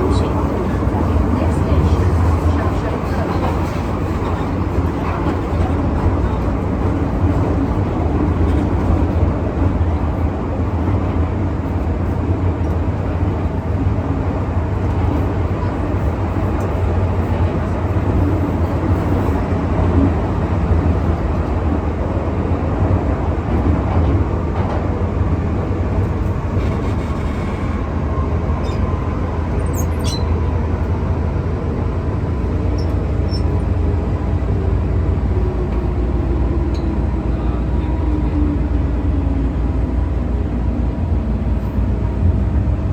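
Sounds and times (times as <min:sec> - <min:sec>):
train wheels rumbling on rail: 0:00.0 - 0:42.9.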